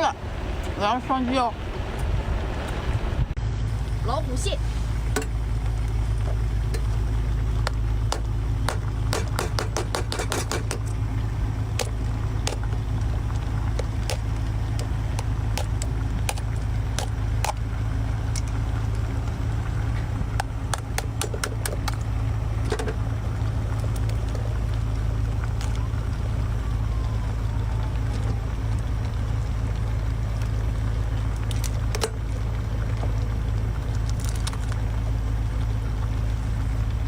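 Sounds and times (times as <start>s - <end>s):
boat engine droning: 0.0s - 37.0s
crab shell cracking: 13.7s - 17.6s, 33.8s - 34.9s.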